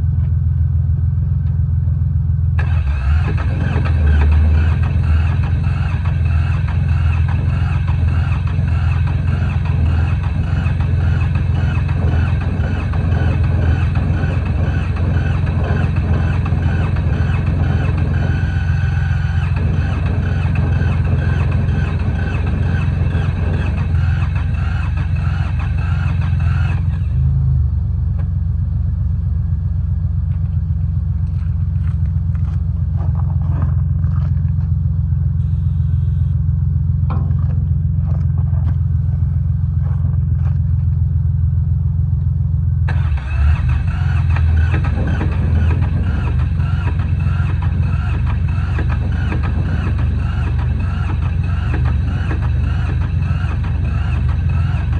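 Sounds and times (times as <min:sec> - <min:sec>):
tractor diesel engine running: 0:00.0 - 0:54.9
harsh high clatter: 0:02.6 - 0:27.3, 0:36.9 - 0:41.0, 0:42.9 - 0:54.9.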